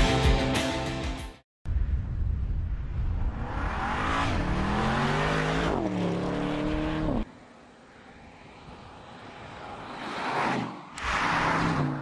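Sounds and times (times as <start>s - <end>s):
car engine accelerating hard: 3.4s - 7.3s.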